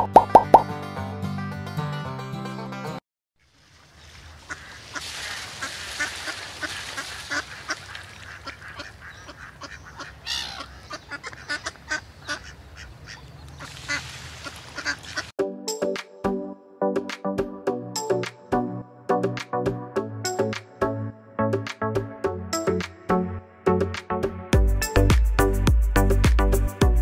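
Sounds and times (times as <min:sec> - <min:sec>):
ducks and geese calling: 0:04.0 - 0:15.3.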